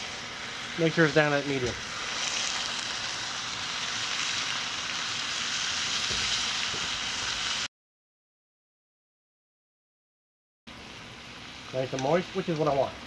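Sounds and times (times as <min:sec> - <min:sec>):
chicken sizzling in oil: 0:00.0 - 0:07.7, 0:10.7 - 0:13.0.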